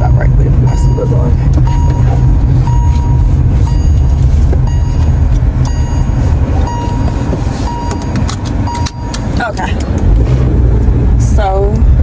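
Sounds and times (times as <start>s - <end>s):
low car rumble: 0.0s - 12.0s
car warning chime beeping: 0.4s - 9.7s.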